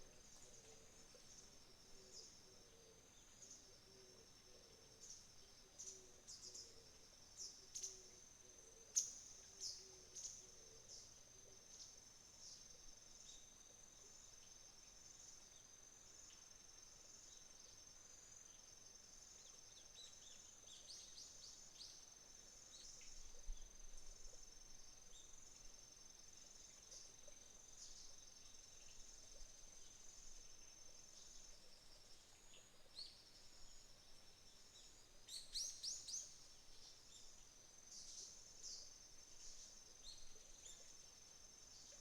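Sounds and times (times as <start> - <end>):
crickets trilling: 0.0 - 42.0.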